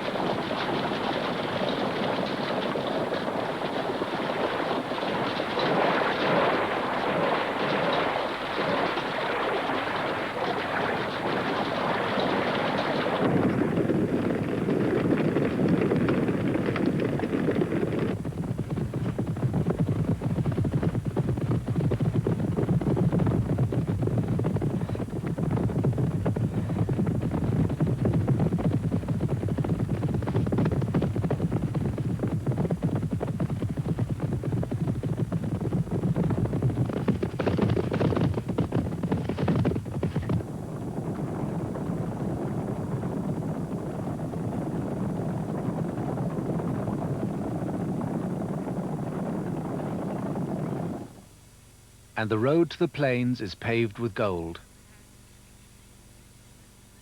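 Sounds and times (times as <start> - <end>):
herd hoofbeats drumming on ground: 11.0 - 40.5.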